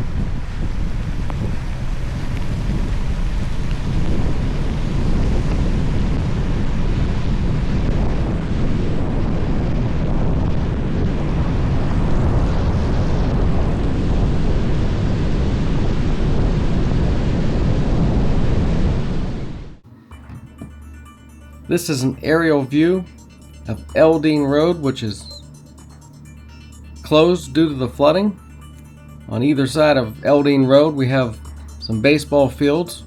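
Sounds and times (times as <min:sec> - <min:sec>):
wind buffeting microphone: 0:00.0 - 0:19.8.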